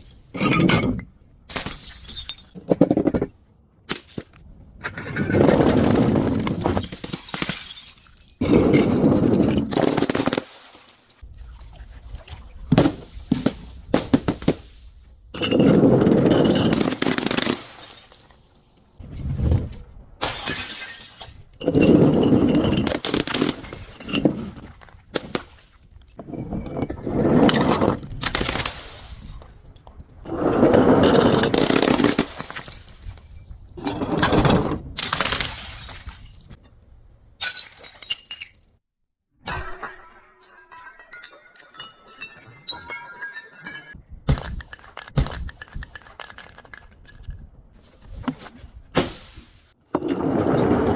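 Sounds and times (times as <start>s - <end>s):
glass bottles being crushed: 0.0s - 3.3s, 5.8s - 11.2s, 15.3s - 18.5s, 20.2s - 25.9s, 31.1s - 34.3s, 37.4s - 38.8s, 39.5s - 47.3s
clinks of breaking pieces: 6.5s - 11.2s, 16.2s - 18.6s, 39.5s - 47.2s.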